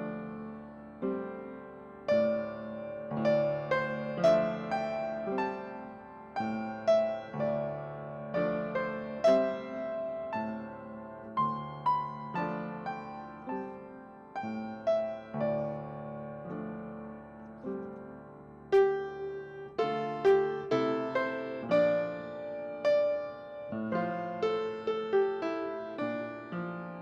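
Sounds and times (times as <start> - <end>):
slow gentle piano piece: 0.0 - 27.0.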